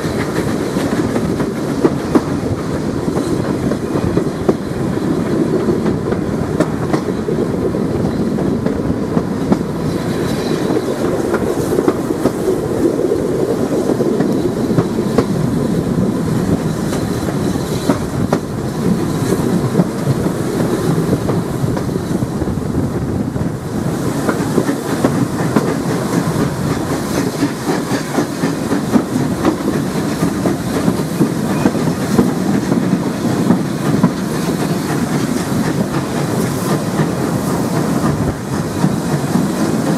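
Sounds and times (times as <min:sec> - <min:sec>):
train rumbling: 0:00.0 - 0:39.9
wheels clattering on track: 0:07.9 - 0:39.9.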